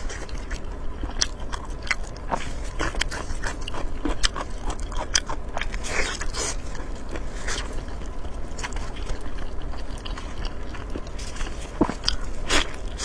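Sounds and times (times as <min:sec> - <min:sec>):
person chewing with wet smacks: 0:00.0 - 0:13.0.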